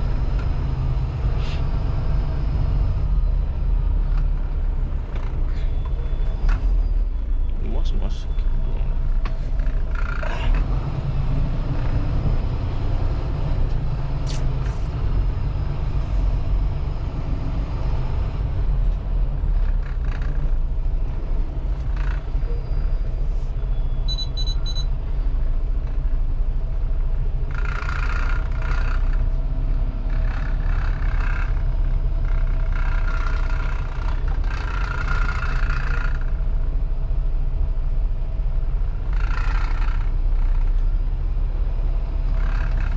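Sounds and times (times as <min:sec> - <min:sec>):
diesel truck engine rumbling: 0:00.0 - 0:42.9
high beeps: 0:24.0 - 0:24.9.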